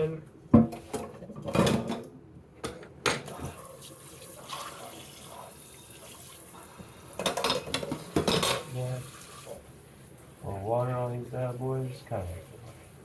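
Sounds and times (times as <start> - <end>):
tap water running into pot: 3.3 - 9.7.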